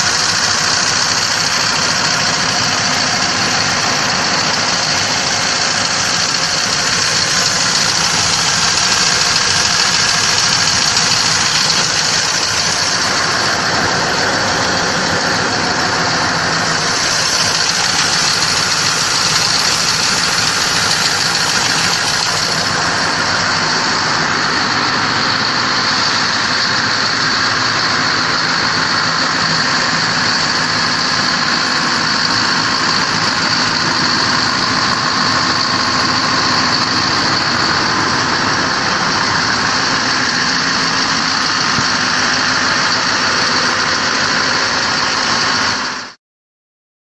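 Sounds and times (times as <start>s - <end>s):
high-pitched whine: 0.0s - 45.8s
diesel engine idling: 0.0s - 46.2s.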